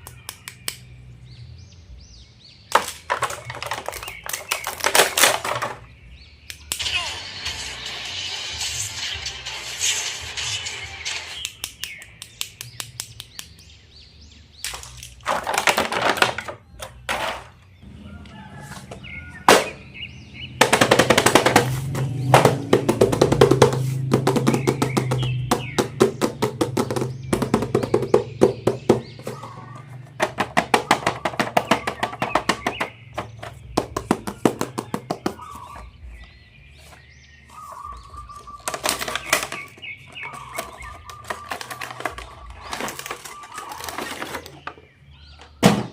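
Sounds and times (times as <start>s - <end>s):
plastic packaging clicking and rattling: 2.7s - 5.8s, 14.7s - 17.4s, 38.3s - 44.9s.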